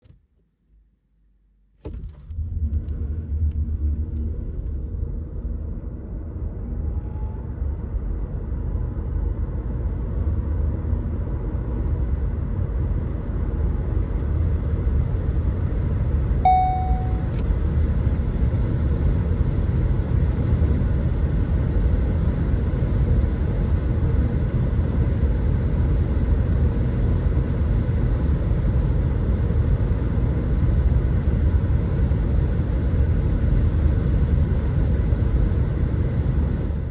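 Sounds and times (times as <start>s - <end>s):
dashboard chime: 16.5s - 17.4s.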